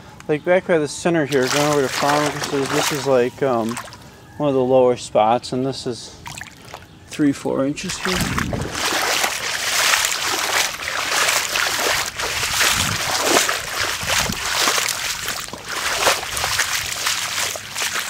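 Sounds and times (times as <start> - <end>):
footsteps splashing through water: 1.2 - 4.0, 6.2 - 6.8, 7.8 - 18.0.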